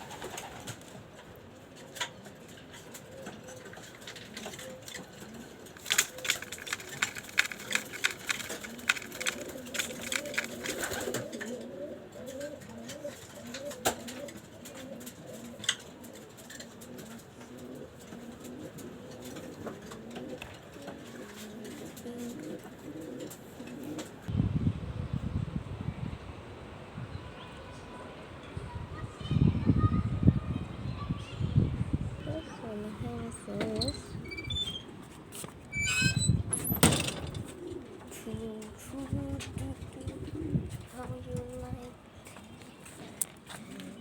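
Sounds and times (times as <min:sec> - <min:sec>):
pigeons cooing: 0:02.1 - 0:24.3, 0:37.0 - 0:41.6, 0:43.5 - 0:44.0
sharp clicks: 0:05.8 - 0:11.2.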